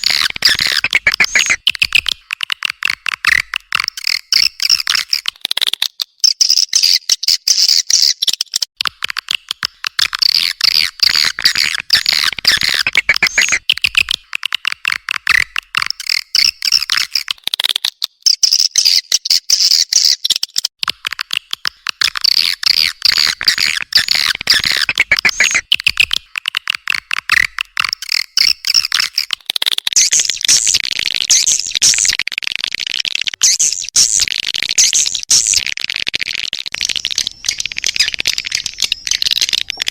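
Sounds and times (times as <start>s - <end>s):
swiftlet twittering chirps: 22.4s - 25.7s, 36.8s - 39.9s.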